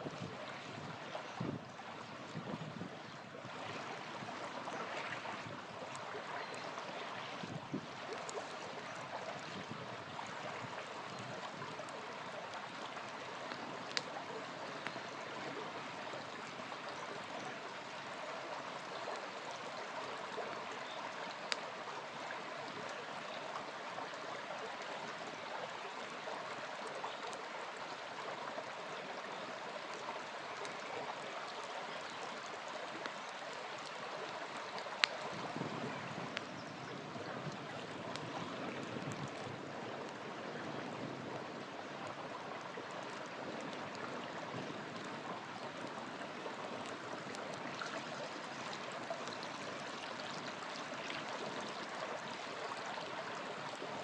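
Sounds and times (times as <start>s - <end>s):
small river flowing: 0.0s - 54.0s
campfire crackling pops: 10.6s - 15.1s, 33.8s - 36.5s, 37.4s - 39.4s.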